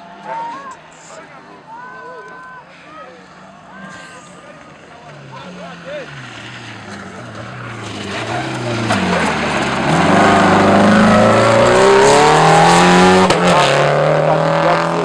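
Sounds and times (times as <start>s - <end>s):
car engine accelerating hard: 3.6s - 15.0s.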